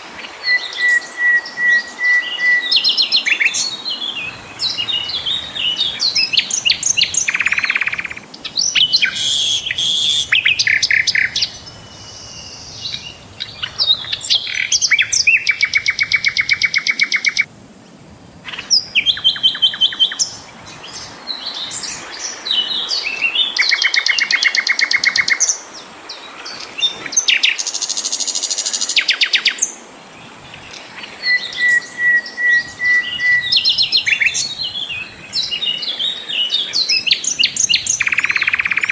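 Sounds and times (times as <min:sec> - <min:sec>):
flycatcher singing chirps and trills: 0:00.4 - 0:17.5, 0:30.7 - 0:38.9.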